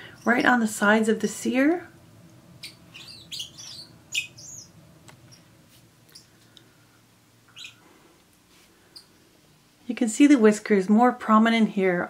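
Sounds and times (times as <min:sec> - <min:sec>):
small birds chirping softly: 0:02.3 - 0:09.2.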